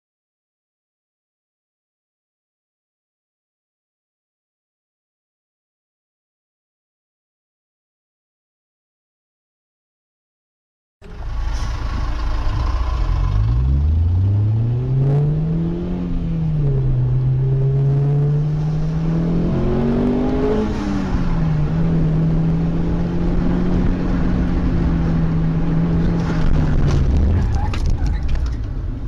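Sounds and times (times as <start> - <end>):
car engine accelerating: 11.0 - 29.0.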